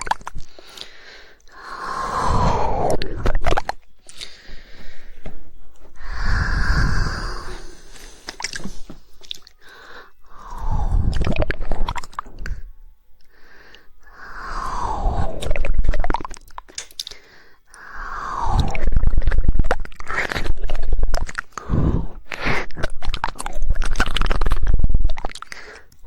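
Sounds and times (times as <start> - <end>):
wet squishy mouth noises: 0.0 - 4.4, 5.9 - 9.7, 10.4 - 12.6, 14.5 - 26.0
sharp tongue clicks: 18.6 - 26.0.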